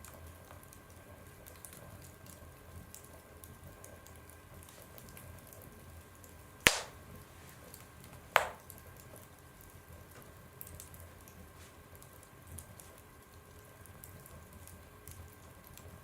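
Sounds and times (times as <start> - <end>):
logs popping sharply: 6.7 - 7.0, 8.4 - 8.6.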